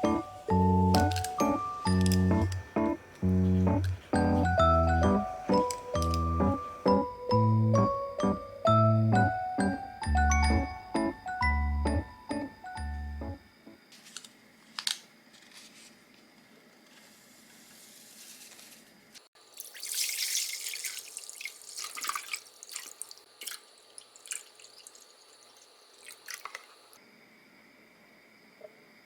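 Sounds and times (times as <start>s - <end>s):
handling clicks and knocks: 0.9s - 6.5s
liquid pouring into container: 19.5s - 27.0s.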